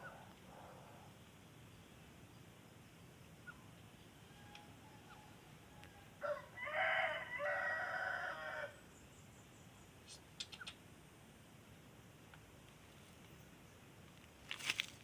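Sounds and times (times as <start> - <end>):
rooster crowing: 4.2 - 8.8.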